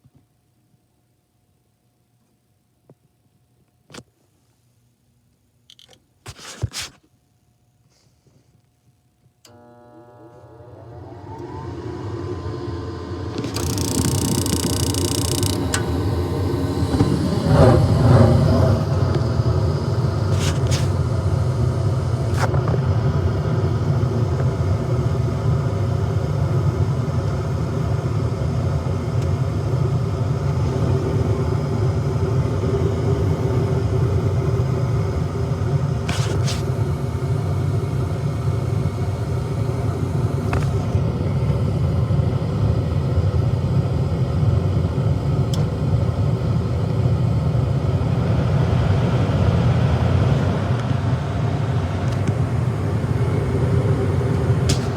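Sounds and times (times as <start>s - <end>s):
gas furnace rumbling: 9.5s - 54.9s
sharp ticks: 13.5s - 15.8s.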